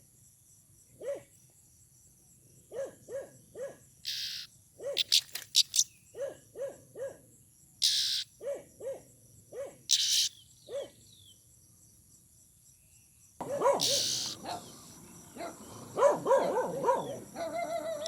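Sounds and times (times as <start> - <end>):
harsh bird rasps: 4.0 - 6.4, 7.8 - 8.5, 9.9 - 11.0, 13.4 - 18.0
bird hooting deeply: 13.4 - 18.0.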